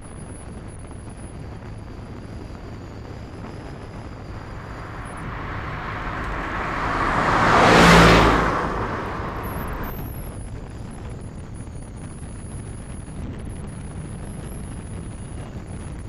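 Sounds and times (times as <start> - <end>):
vehicle passing by: 4.3 - 10.0.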